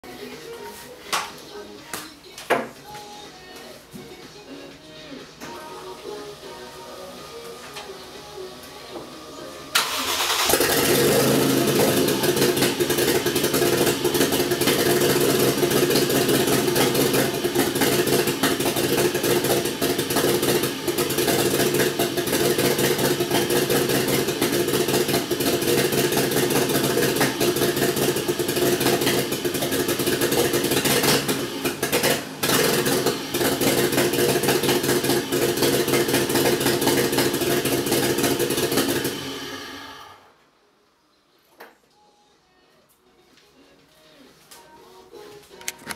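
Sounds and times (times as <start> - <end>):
engine misfiring: 9.7 - 40.0.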